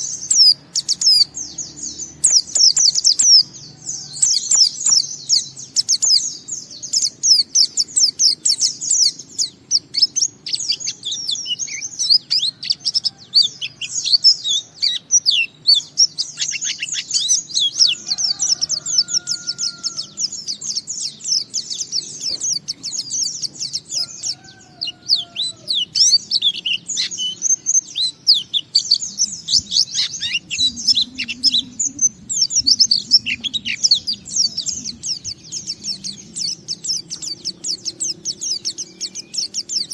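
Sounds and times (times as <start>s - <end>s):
bird chirping twitters: 0.0s - 39.9s.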